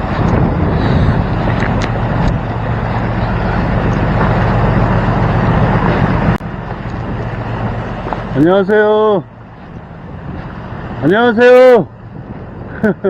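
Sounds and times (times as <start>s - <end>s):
wind on microphone: 0.0s - 8.4s, 9.0s - 13.0s
boat engine droning: 0.0s - 13.0s.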